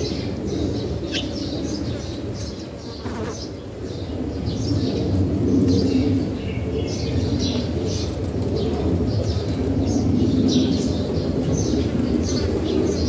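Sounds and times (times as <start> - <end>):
birds chirping: 11.5 - 13.0.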